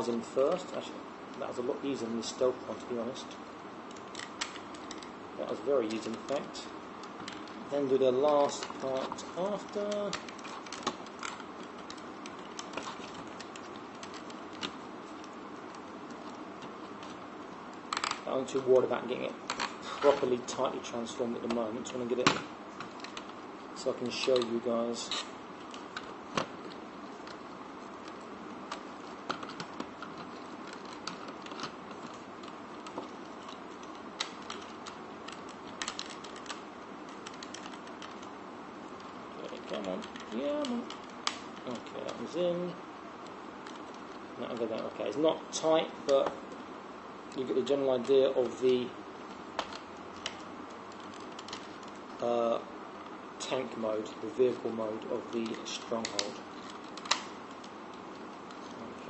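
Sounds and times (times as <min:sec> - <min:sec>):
steady hiss: 0:00.0 - 0:59.0
plastic toy parts clicking: 0:17.9 - 0:18.2, 0:28.0 - 0:38.3, 0:55.0 - 0:57.7.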